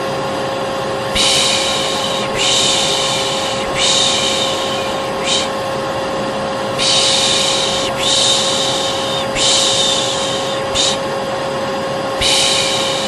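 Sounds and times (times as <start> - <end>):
hair dryer humming: 0.0 - 13.0
person shushing: 1.1 - 5.8, 6.8 - 11.1, 12.2 - 13.0.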